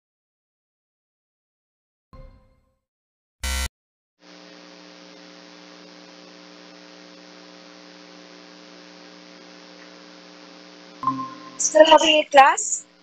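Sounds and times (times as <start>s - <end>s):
electrical hum with tones: 3.4s - 13.0s.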